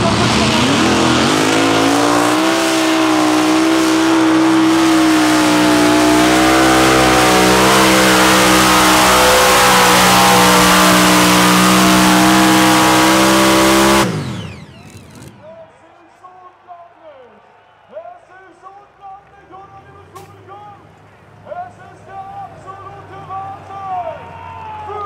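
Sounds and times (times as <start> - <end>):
tractor engine at full throttle: 0.0 - 15.4.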